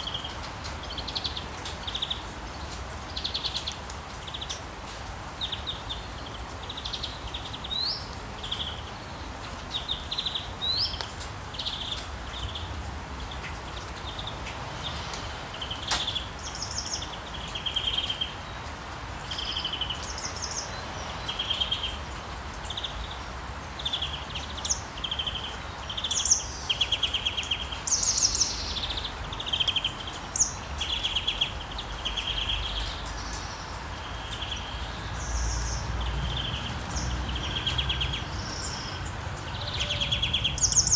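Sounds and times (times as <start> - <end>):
birds chirping and trilling: 23.8 - 40.9.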